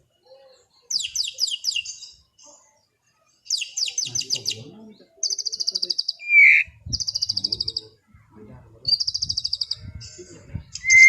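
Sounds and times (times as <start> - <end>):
bird high trills: 5.3 - 7.9
bird slurred whistle: 6.0 - 7.8, 10.8 - 11.0.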